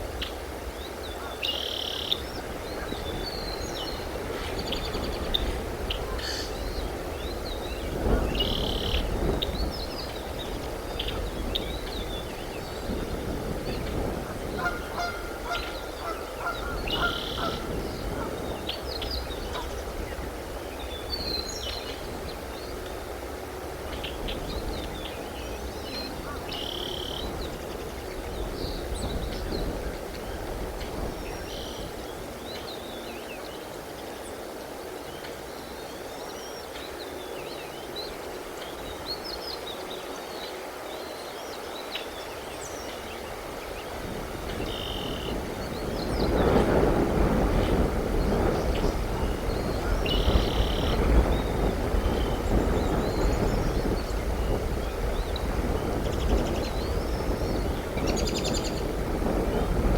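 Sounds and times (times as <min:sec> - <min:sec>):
low background noise: 0:00.0 - 0:59.9.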